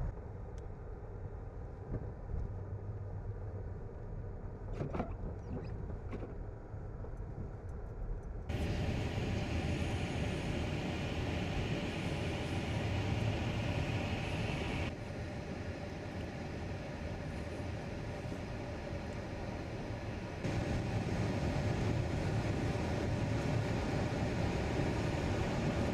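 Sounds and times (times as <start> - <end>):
steady hiss: 8.5 - 15.2.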